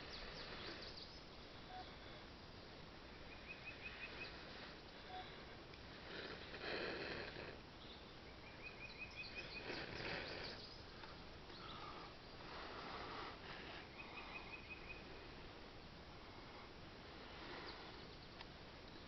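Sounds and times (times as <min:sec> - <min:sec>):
bird chirping: 0:00.0 - 0:05.5, 0:07.7 - 0:15.3, 0:17.3 - 0:19.0
person blowing air: 0:11.8 - 0:13.9.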